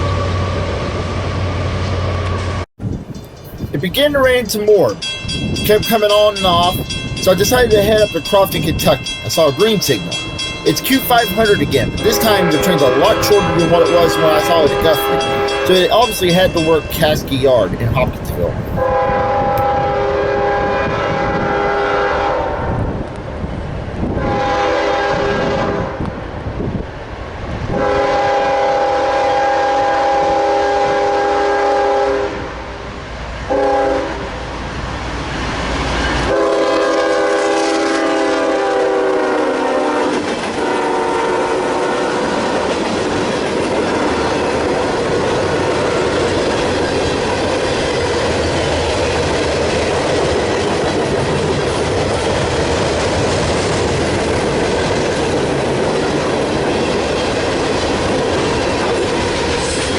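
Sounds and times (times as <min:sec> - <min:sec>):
locomotive air horn blasts: 0:10.7 - 0:17.3, 0:18.7 - 0:22.8, 0:24.2 - 0:26.0, 0:27.7 - 0:32.6, 0:33.5 - 0:34.3, 0:36.3 - 0:42.2.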